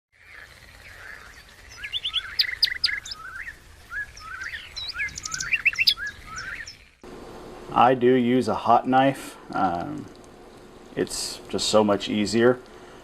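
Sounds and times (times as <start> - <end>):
songbirds chirping and singing: 0.2 - 7.0.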